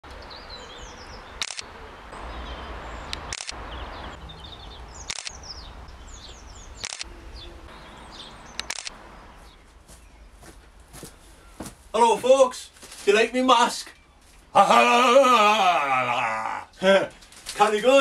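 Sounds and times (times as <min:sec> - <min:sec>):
small birds chirping: 0:00.1 - 0:13.2, 0:13.8 - 0:14.6
sharp clicks: 0:01.4 - 0:01.7, 0:03.1 - 0:03.6, 0:05.0 - 0:05.4, 0:06.8 - 0:07.1, 0:08.5 - 0:09.0.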